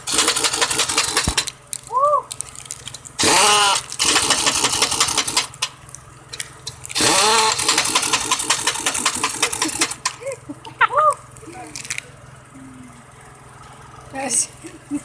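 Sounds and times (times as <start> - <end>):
impact wrench whining: 0.0 - 1.5, 3.2 - 5.8, 6.9 - 10.2.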